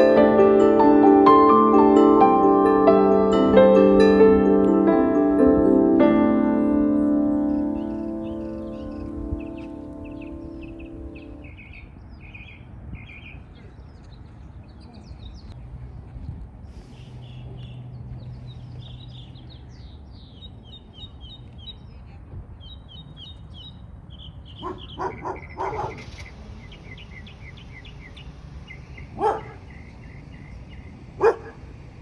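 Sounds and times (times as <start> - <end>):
small birds chirping: 7.0 - 15.7, 16.7 - 32.0
low outdoor rumble: 24.5 - 32.0.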